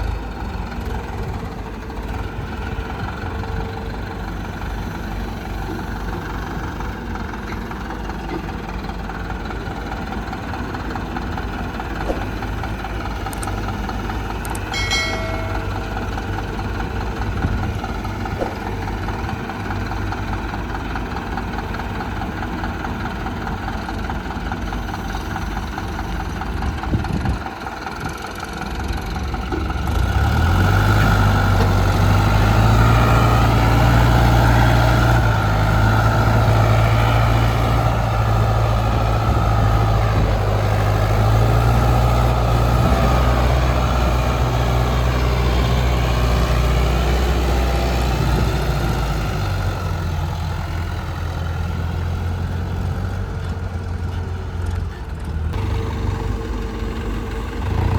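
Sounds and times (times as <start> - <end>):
diesel engines running: 0.0 - 57.9
short high tone: 14.7 - 16.2.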